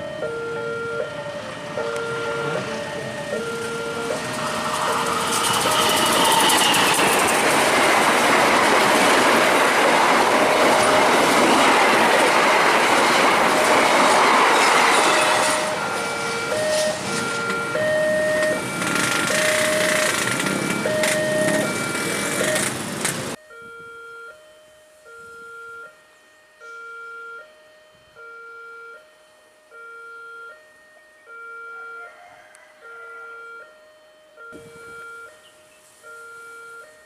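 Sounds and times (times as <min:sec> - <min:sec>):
two-tone crossing alarm: 0:00.0 - 0:37.0
train wheels clattering: 0:03.4 - 0:23.4.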